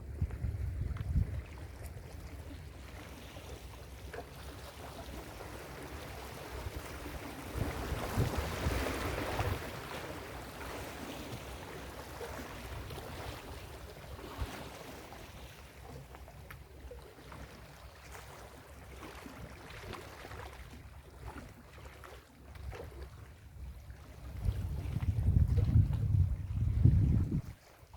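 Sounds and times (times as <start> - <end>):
wind rumble on microphone: 0.0 - 2.6, 6.0 - 10.0, 22.5 - 27.9.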